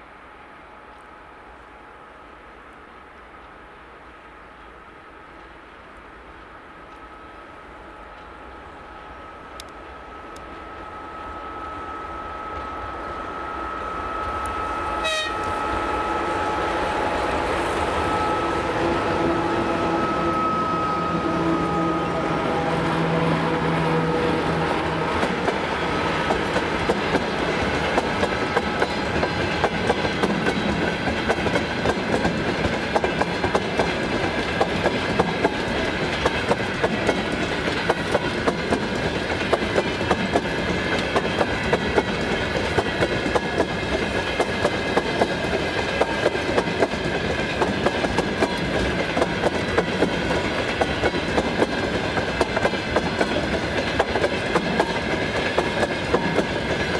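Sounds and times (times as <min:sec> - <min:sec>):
freight train rolling past: 0:00.0 - 0:56.9
wheels clicking over rail joints: 0:24.0 - 0:56.9.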